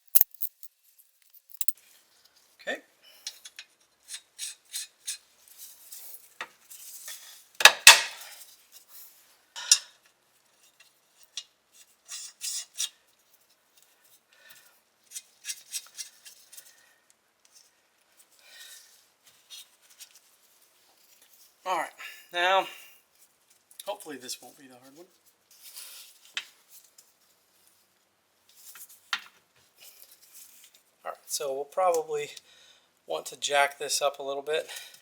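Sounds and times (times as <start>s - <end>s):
metal clinking and scraping: 0.0s - 1.8s.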